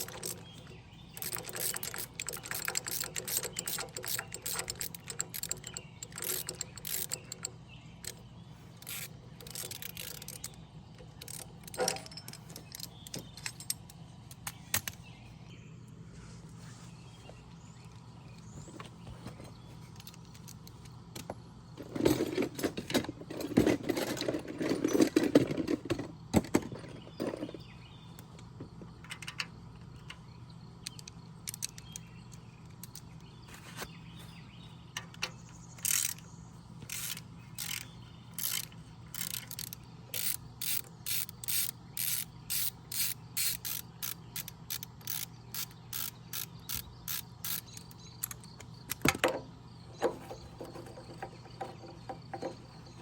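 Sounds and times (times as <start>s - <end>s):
metal tools clattering: 0.0s - 8.2s, 8.8s - 14.9s, 21.8s - 27.6s, 47.5s - 53.0s
ratchet wrench clicking: 0.0s - 8.2s, 8.8s - 15.0s, 30.8s - 33.0s, 35.0s - 49.0s
steady low hum: 27.6s - 53.0s.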